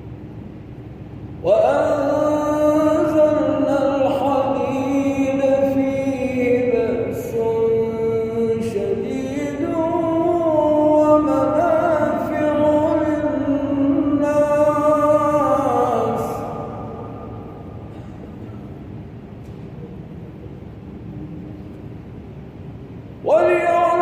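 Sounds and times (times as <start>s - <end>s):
man reciting in melodic style: 1.4s - 17.9s, 23.2s - 24.0s.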